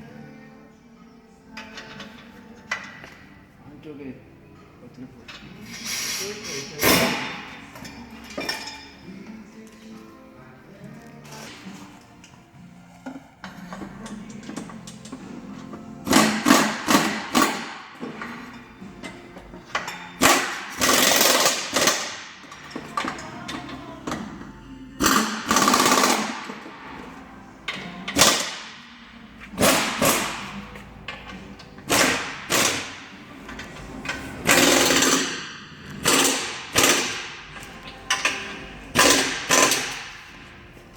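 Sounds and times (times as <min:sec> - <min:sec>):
sharp metal impacts: 0:05.7 - 0:08.8, 0:16.0 - 0:19.1, 0:19.7 - 0:23.2, 0:27.7 - 0:40.5.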